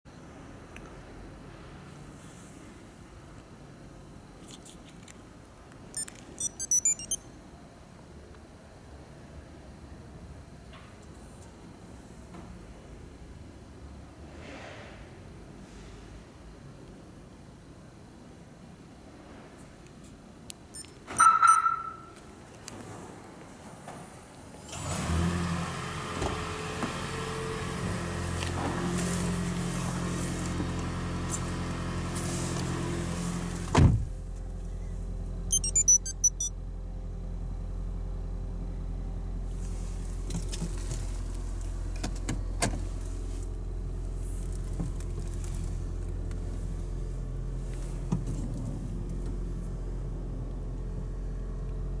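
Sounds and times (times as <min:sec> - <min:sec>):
short high beeps: 0:06.0 - 0:07.3, 0:35.5 - 0:36.5.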